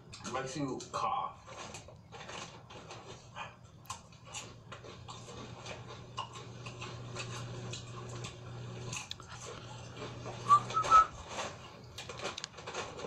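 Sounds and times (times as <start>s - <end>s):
crunchy chips being chewed: 0.0s - 13.0s
short high squeaks: 10.4s - 11.2s.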